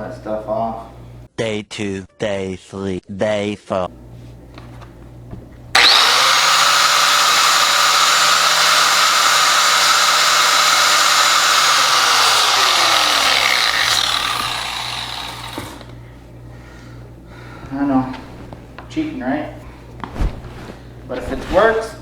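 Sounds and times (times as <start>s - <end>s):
small power tool motor whining: 5.7s - 16.0s.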